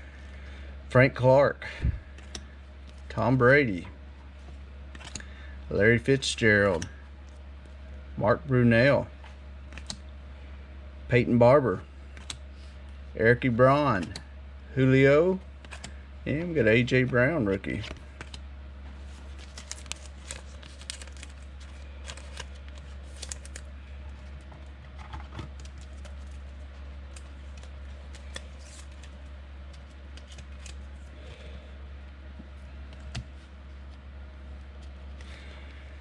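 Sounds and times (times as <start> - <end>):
low electrical hum: 0.0 - 36.0
cards crinkling and clicking: 2.1 - 3.1, 4.4 - 5.4, 9.7 - 10.0, 12.1 - 12.4, 15.6 - 16.0, 16.9 - 31.4, 32.9 - 34.0.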